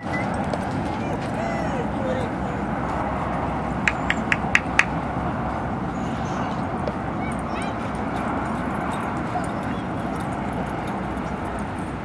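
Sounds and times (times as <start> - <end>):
dog whimpering: 0.0 - 2.7.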